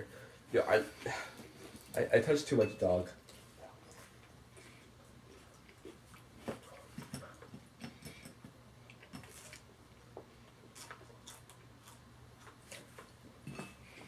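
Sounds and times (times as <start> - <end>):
low steady hum: 0.0 - 14.0
chewing and mouth sounds: 3.3 - 9.7, 10.4 - 13.3.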